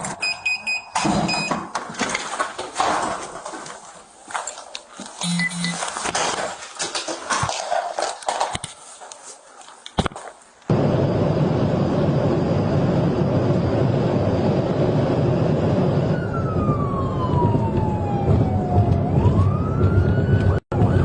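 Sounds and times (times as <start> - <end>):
police siren wail: 15.6 - 21.0.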